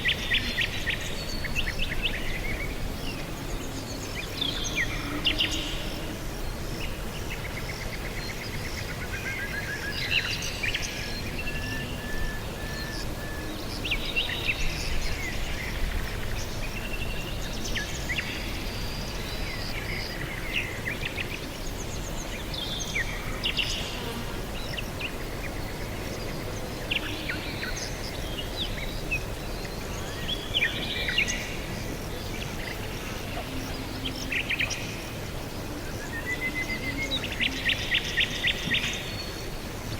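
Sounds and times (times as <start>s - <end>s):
wild birds chirping: 0.0s - 39.9s.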